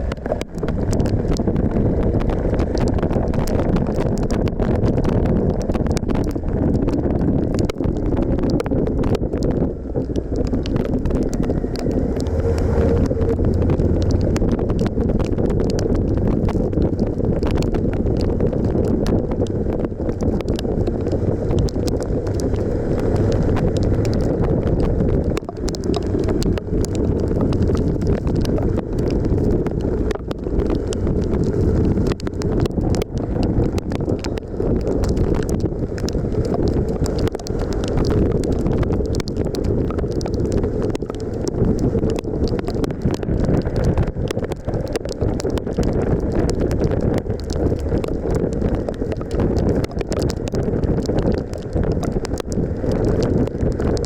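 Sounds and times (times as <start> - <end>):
wind buffeting microphone: 0.0 - 54.0
motorcycle engine running: 11.2 - 15.6.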